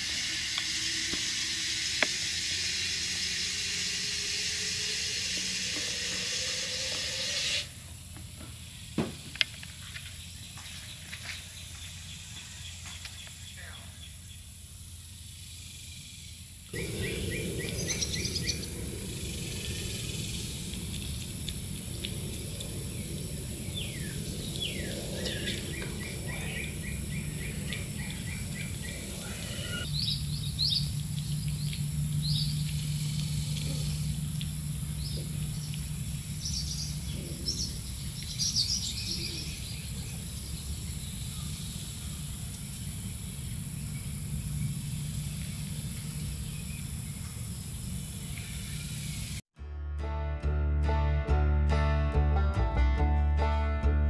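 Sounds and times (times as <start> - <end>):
outdoor background noise: 0.0 - 49.4
songbirds chirping: 7.8 - 49.4
low steady hum: 9.7 - 47.4.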